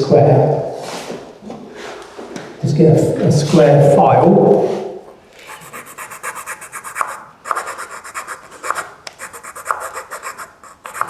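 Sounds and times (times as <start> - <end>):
file rasping on wood: 5.5 - 11.0.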